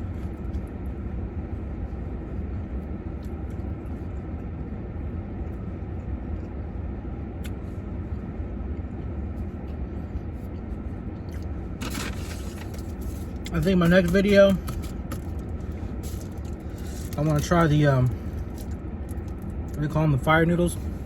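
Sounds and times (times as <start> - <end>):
vehicle engine idling: 7.5 - 21.0.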